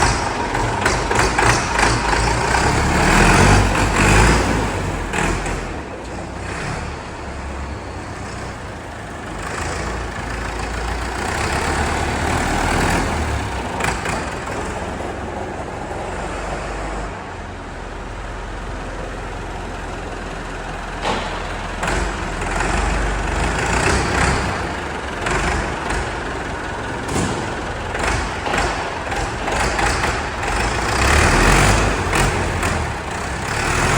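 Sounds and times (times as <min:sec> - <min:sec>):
knocks and clatter: 0:00.0 - 0:06.6, 0:20.9 - 0:33.9
tractor engine rumble: 0:00.0 - 0:33.9.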